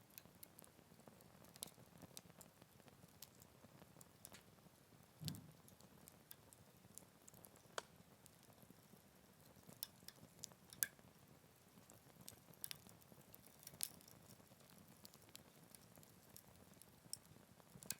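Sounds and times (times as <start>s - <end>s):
wood fire crackling: 0.0s - 17.9s
soft low thump: 5.2s - 5.5s.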